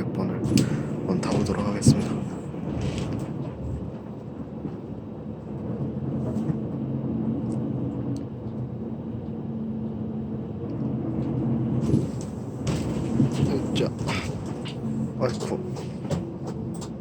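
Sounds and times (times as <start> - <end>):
bus engine and road drone: 0.0 - 17.0
sharp knocks and rattles: 0.5 - 4.8, 11.8 - 17.0.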